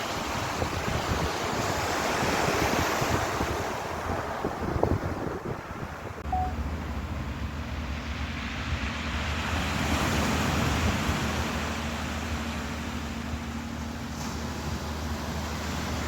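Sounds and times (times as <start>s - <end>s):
ocean waves washing in: 0.0s - 16.0s
low hum: 6.2s - 9.6s.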